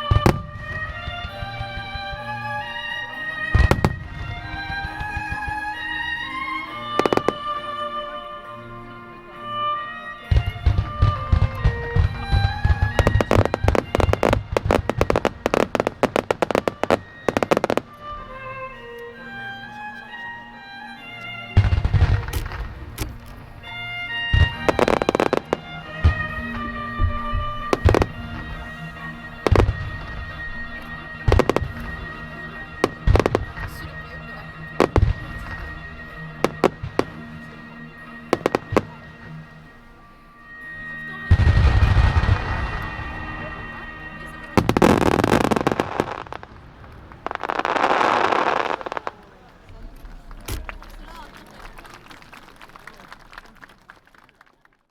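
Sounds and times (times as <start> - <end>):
fireworks sharp cracking: 0.0 - 7.9, 10.2 - 19.0, 21.6 - 39.9, 40.5 - 52.6
orchestral music: 0.0 - 53.7
fireworks booming shell bursts: 21.6 - 23.6.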